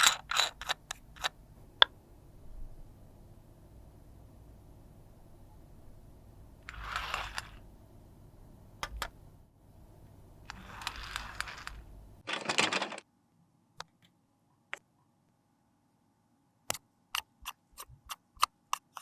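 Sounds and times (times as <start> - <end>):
sharp clicks and taps: 17.2 - 19.0.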